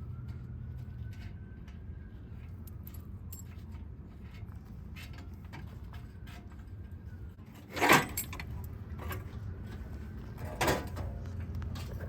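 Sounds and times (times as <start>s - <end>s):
metal parts clanking: 7.6s - 9.3s.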